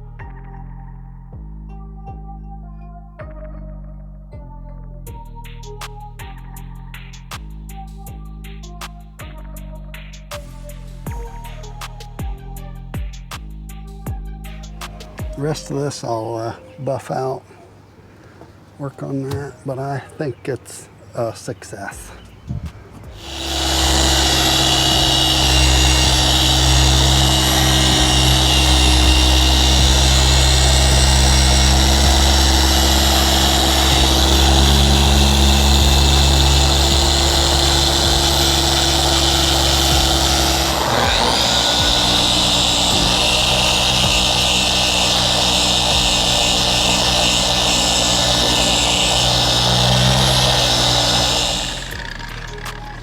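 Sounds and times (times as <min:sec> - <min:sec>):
electric paint polisher running: 0:23.2 - 0:53.0.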